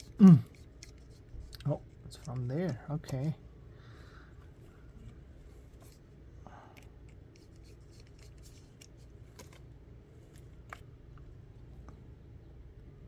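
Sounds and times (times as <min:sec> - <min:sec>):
plastic parts clicking and scraping: 0:00.0 - 0:03.4, 0:06.7 - 0:10.9
low steady hum: 0:00.0 - 0:13.0.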